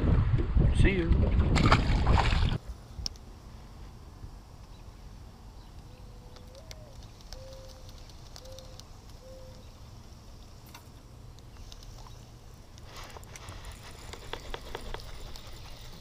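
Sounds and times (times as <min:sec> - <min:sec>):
dove cooing: 0:05.9 - 0:09.7.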